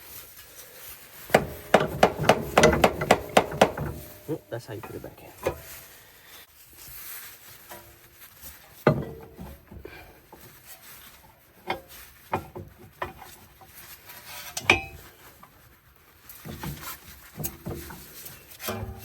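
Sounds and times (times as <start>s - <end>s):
metal tools clanking: 1.3s - 5.8s.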